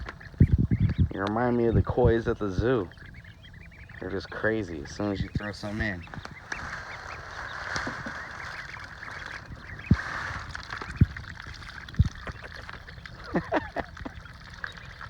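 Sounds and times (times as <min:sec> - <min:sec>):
sharp low thumps: 0:00.0 - 0:04.1
baby ducks calling: 0:00.0 - 0:15.0.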